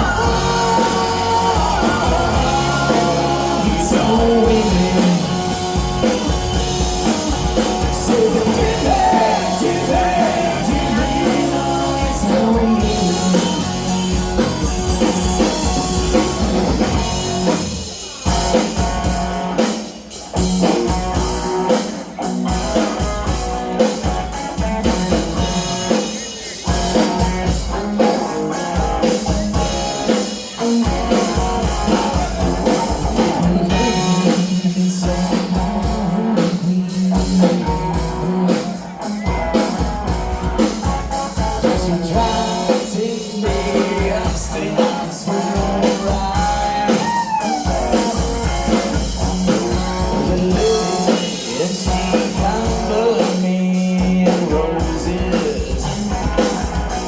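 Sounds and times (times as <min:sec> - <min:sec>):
drum kit: 0:00.0 - 0:57.0
guitar: 0:00.0 - 0:57.0
rock band playing: 0:00.0 - 0:57.0.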